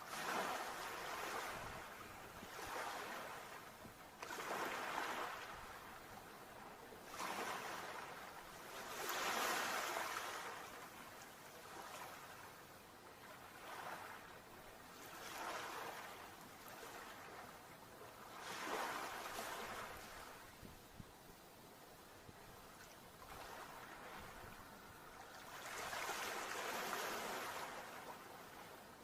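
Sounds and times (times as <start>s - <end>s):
sea waves washing onto shore: 7.0s - 12.4s, 22.4s - 28.9s.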